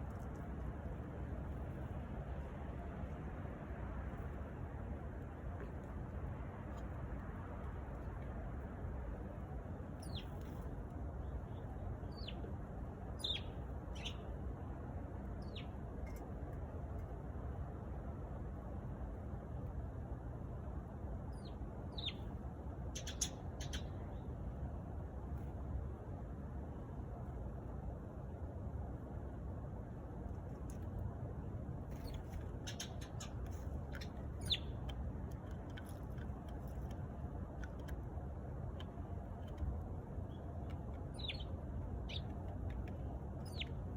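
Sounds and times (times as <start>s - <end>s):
low background rumble: 0.0s - 43.9s
sparrow chirping: 10.0s - 10.4s, 11.2s - 12.5s, 13.2s - 14.4s, 15.4s - 15.8s, 21.3s - 22.3s, 23.0s - 24.1s, 32.0s - 34.8s, 41.1s - 43.9s.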